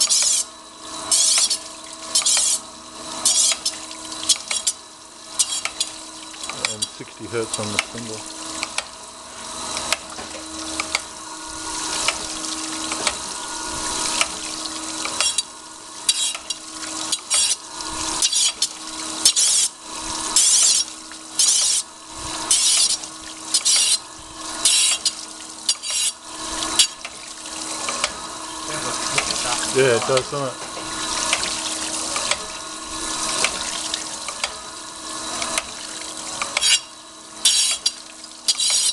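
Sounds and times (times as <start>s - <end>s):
grinding wheel hissing on steel: 0.0s - 2.6s, 10.5s - 27.0s, 36.5s - 38.9s
grinder machine hum: 0.0s - 38.9s.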